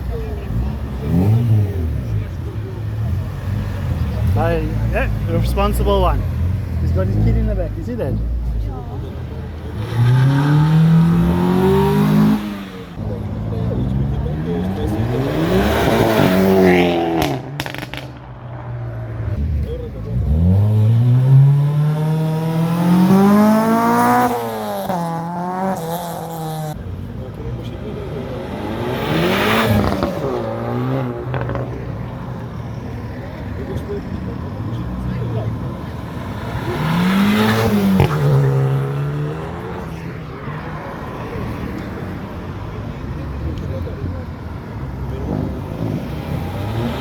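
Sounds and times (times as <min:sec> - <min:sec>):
car engine accelerating: 0:00.0 - 0:47.0
exhaust crack: 0:13.0 - 0:40.6.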